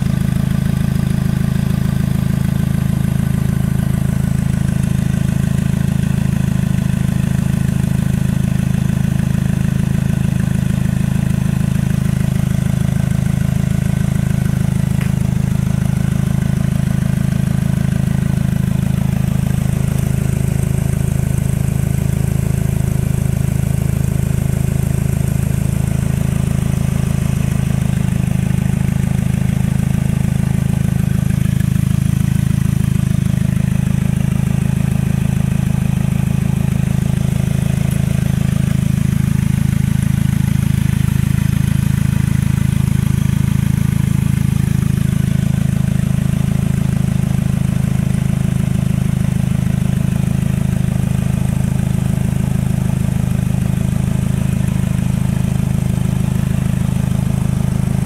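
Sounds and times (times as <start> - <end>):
turbocharged car engine idling: 0.0 - 58.0.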